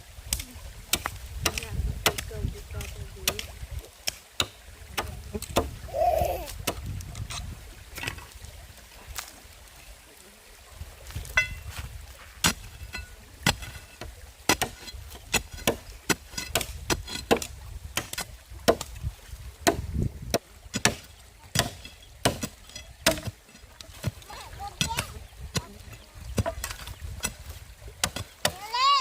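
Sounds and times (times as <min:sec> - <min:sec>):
wood being chopped: 0:00.3 - 0:05.8, 0:12.4 - 0:18.9, 0:19.6 - 0:24.2, 0:24.8 - 0:28.7.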